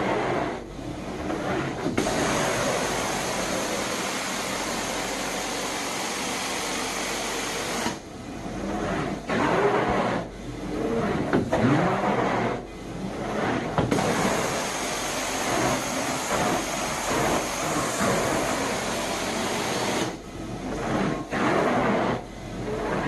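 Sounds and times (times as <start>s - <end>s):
vacuum suction hiss: 2.0s - 8.0s, 13.9s - 20.2s.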